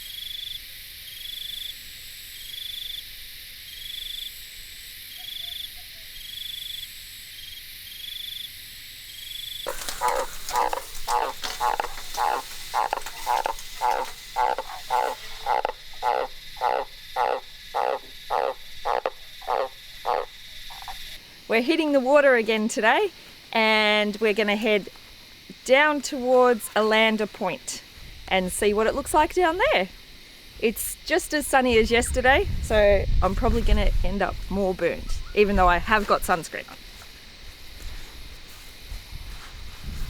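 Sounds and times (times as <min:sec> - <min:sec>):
frog croaking loudly: 0:09.7 - 0:21.2.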